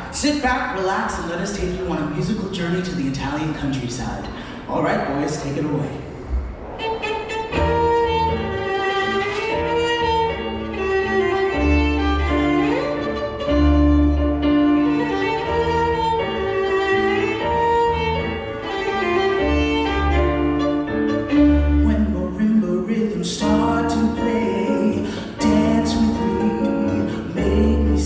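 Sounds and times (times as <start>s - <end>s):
piano: 0.0s - 28.0s
deep bass notes: 5.8s - 10.5s
violin melody: 6.8s - 28.0s.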